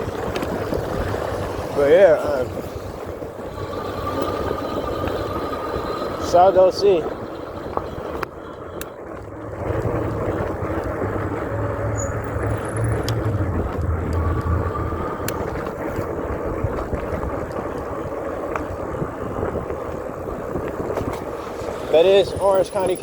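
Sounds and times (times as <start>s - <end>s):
road and wind noise: 0.0s - 23.0s
low rumble: 2.4s - 18.2s.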